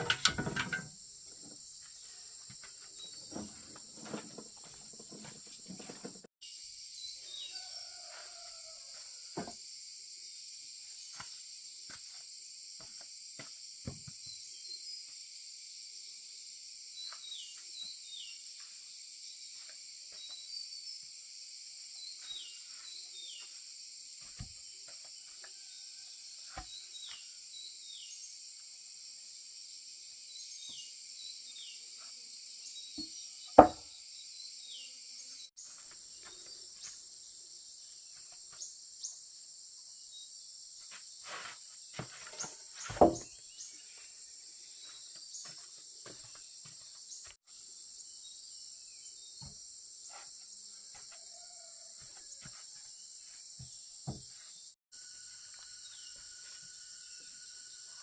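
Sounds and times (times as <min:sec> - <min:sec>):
high-pitched insect chorus: 0:06.4 - 0:58.0
sharp knocks: 0:33.6 - 0:33.8.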